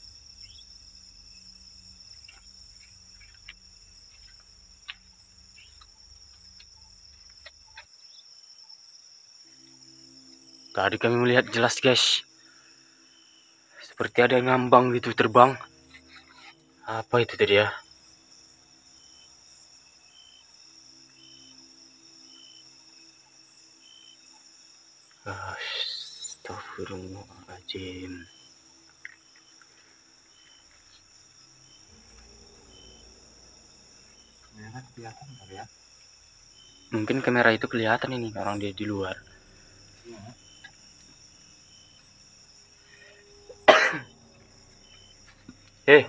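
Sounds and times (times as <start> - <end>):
crickets chirping: 0.0 - 46.0
faint low drone: 31.5 - 46.0.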